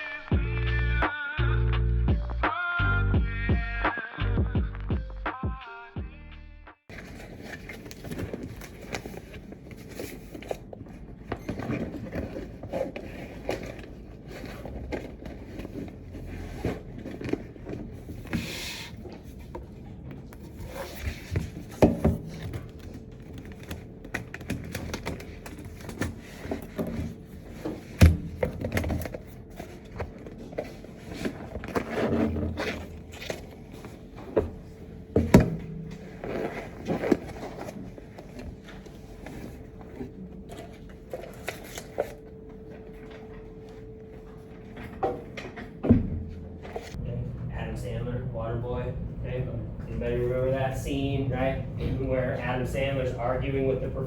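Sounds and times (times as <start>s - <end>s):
objects scraping and knocking: 6.9s - 42.3s.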